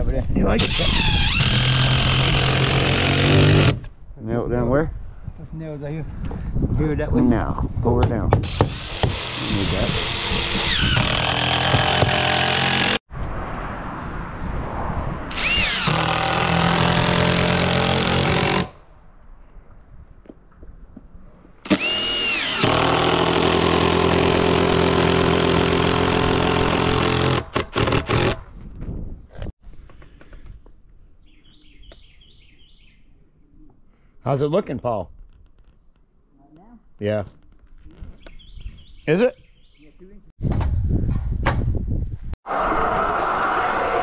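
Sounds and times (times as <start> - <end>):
power tool motor whining: 0.6 - 3.8, 8.4 - 13.0, 21.6 - 28.4.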